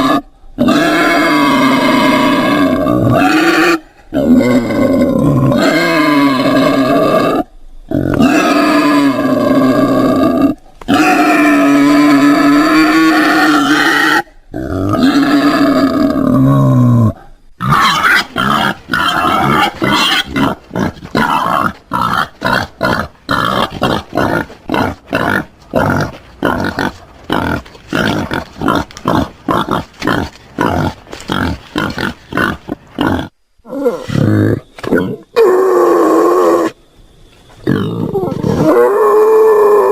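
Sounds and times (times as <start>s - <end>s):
wild boar call: 37.6s - 39.9s.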